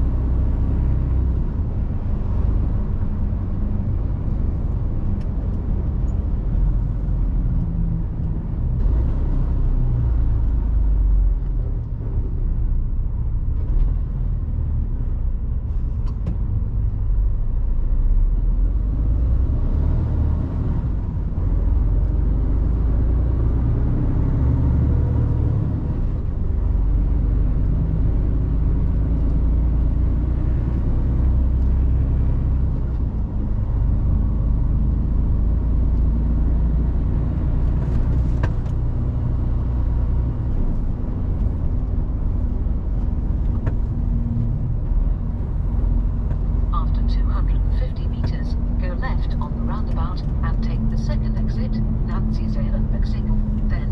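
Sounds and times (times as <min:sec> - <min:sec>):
road and tyre noise: 0:00.0 - 0:53.9
truck diesel engine running: 0:39.1 - 0:53.9.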